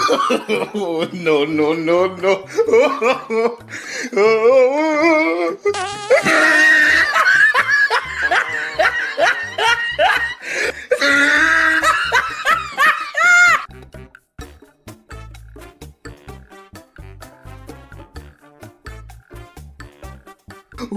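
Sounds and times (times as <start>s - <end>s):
hearty laughter: 0.0s - 1.3s, 2.2s - 3.8s, 6.1s - 13.7s
background music: 0.0s - 20.9s.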